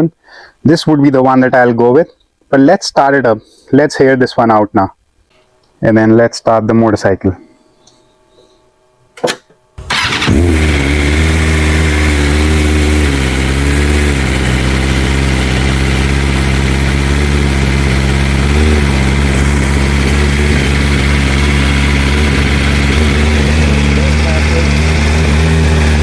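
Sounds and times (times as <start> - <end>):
motorcycle engine starting and idling: 9.2 - 26.0.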